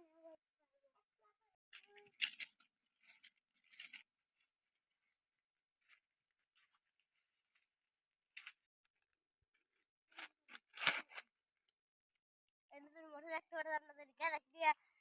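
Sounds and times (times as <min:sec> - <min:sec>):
soft rustling and scraping: 0:01.8 - 0:08.7.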